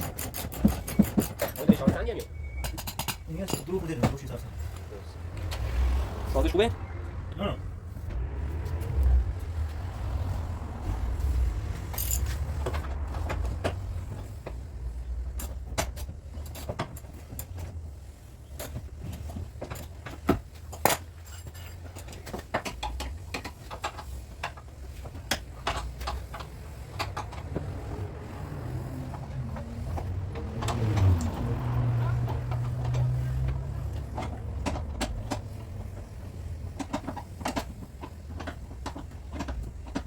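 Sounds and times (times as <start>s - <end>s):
metallic clicks and knocks: 0.0s - 4.4s, 18.6s - 40.0s
low rumble: 6.0s - 14.8s.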